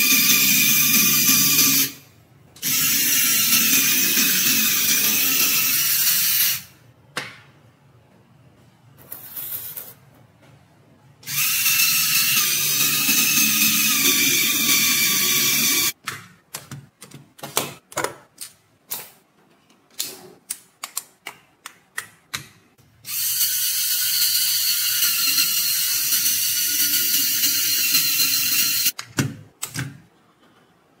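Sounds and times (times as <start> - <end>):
toy motor and gears whirring: 0.0 - 2.0, 2.6 - 6.8, 11.2 - 16.0, 23.1 - 29.0.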